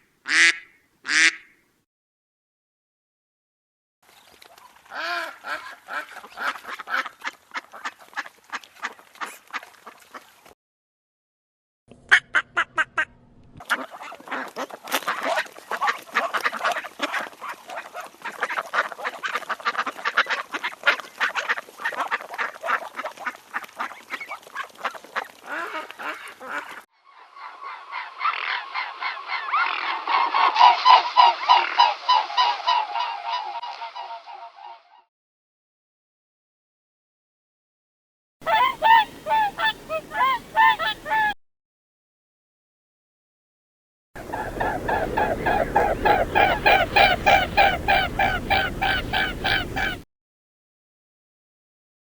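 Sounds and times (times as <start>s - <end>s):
waterfowl honking and quacking: 0.3s - 1.6s, 4.7s - 10.4s, 12.1s - 35.1s, 38.4s - 41.4s, 44.2s - 50.0s.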